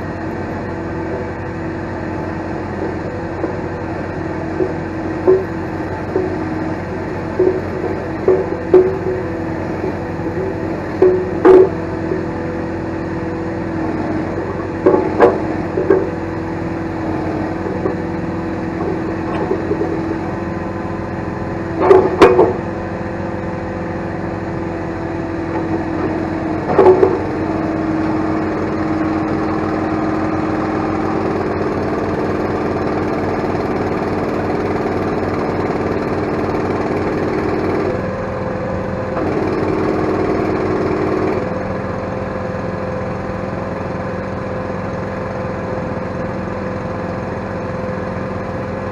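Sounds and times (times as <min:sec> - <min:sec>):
excavator engine running: 0:00.0 - 0:48.9
loud sharp knocks: 0:07.4 - 0:11.8, 0:21.8 - 0:22.7.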